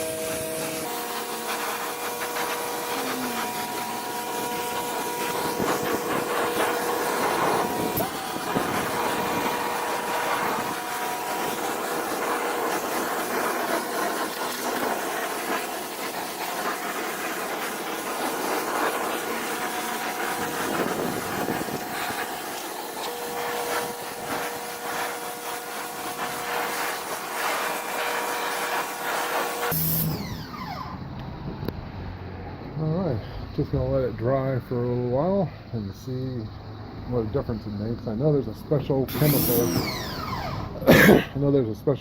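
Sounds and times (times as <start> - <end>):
water jet spraying on wooden deck: 0.0 - 31.1, 38.9 - 41.3
pressure washer motor whine: 0.0 - 41.4.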